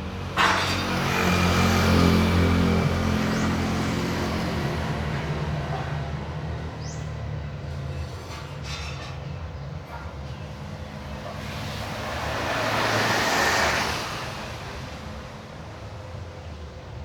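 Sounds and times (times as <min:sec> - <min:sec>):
vehicle rushing past: 0:11.4 - 0:15.2.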